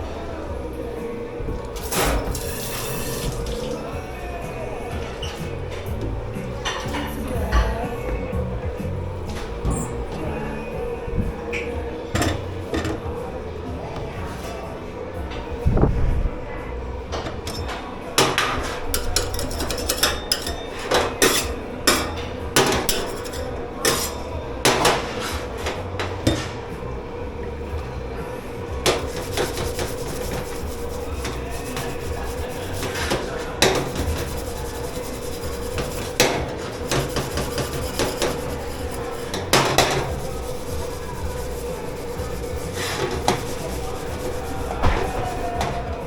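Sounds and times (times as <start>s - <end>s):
steady hum: 0.0s - 18.1s, 25.4s - 46.0s
dishes and cutlery clattering: 12.1s - 13.1s, 17.2s - 26.6s.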